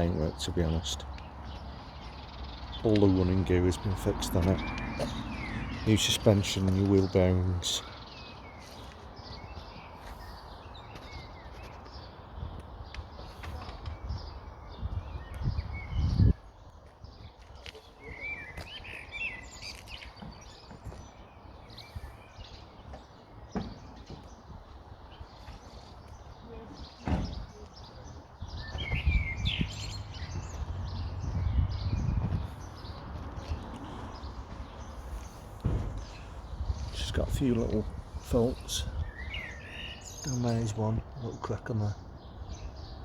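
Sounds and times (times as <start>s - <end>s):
small birds chirping: 0.0s - 43.0s
wind rumble on microphone: 13.6s - 17.4s, 28.3s - 39.4s.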